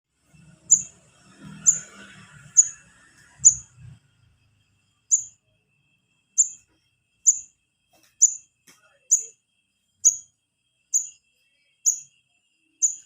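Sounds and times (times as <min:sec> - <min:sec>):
young birds chirping: 0:00.4 - 0:02.8, 0:03.4 - 0:03.7.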